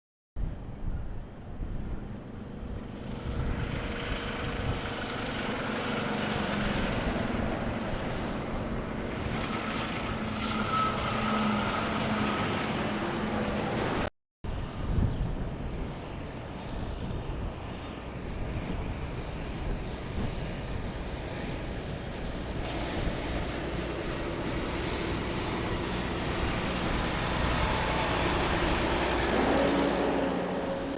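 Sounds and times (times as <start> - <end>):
road noise: 0.4 - 30.9
diesel trucks driving past: 1.2 - 14.1, 15.5 - 30.9.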